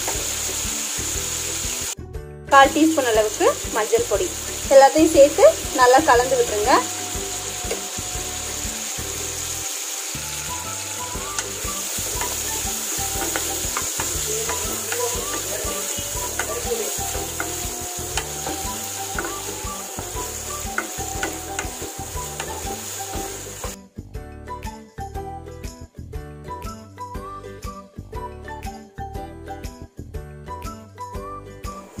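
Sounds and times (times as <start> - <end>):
chicken sizzling in oil: 0.0 - 2.0, 2.6 - 23.8
jingling music: 2.5 - 32.0.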